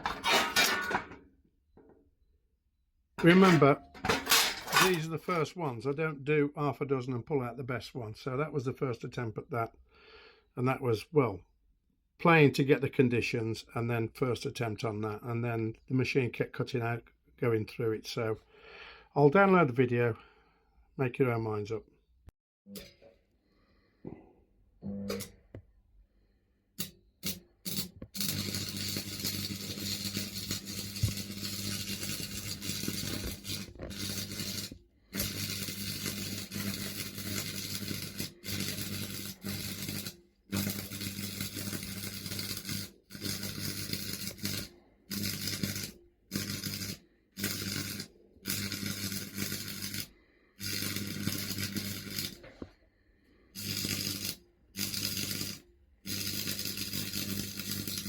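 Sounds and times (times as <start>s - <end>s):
welding arc crackling hiss: 27.2s - 52.4s, 53.6s - 58.0s.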